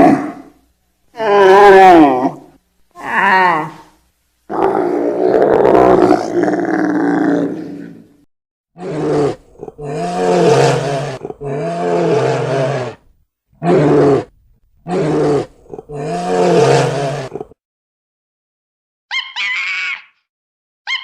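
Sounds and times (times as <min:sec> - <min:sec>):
big cat roaring: 0:00.0 - 0:00.5, 0:04.5 - 0:08.1, 0:08.8 - 0:13.0, 0:13.6 - 0:17.6
high-pitched animal call: 0:19.1 - 0:20.2.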